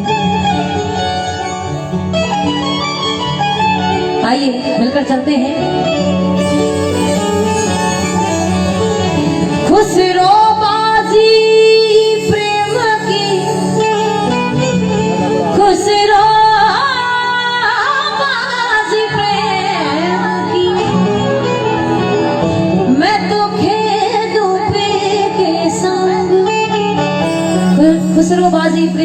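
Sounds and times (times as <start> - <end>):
instrumental drone: 0.0 - 24.5, 27.0 - 29.0
woman singing: 9.6 - 21.7, 22.8 - 29.0.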